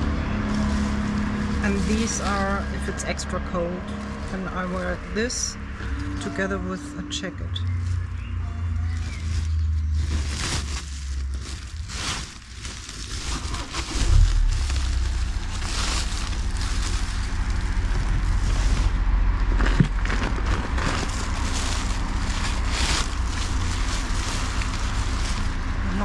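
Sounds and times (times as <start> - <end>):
steady low rumble: 0.0 - 26.0
clothes rustling: 8.9 - 19.0, 19.8 - 26.0.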